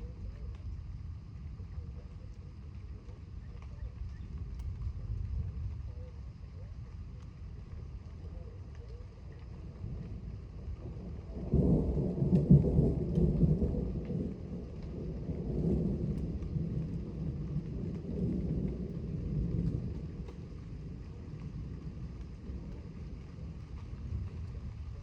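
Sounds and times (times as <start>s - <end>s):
thunder rolling: 9.7s - 25.0s.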